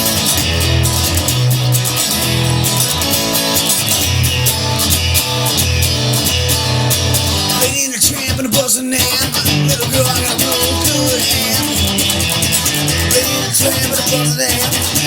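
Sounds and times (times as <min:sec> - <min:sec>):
pulsing bass line: 0:00.0 - 0:07.7, 0:09.4 - 0:15.0
guitars playing: 0:00.0 - 0:15.0
steady drum beat: 0:04.1 - 0:15.0.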